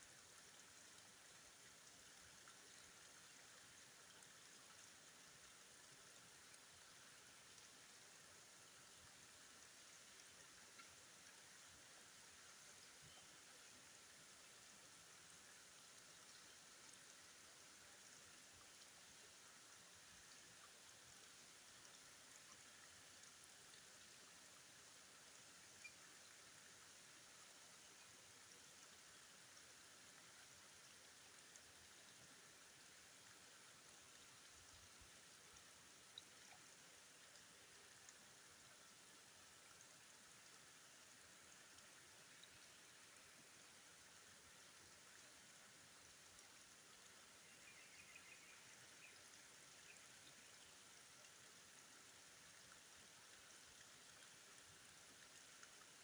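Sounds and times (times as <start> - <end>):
faint rush of river water: 0.0 - 56.0
faint ticks: 10.1 - 11.4, 36.1 - 38.7.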